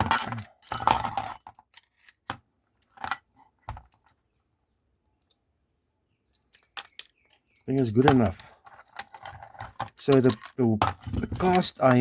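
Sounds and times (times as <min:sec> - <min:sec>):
vice metal clicks and knocks: 0:06.3 - 0:12.0.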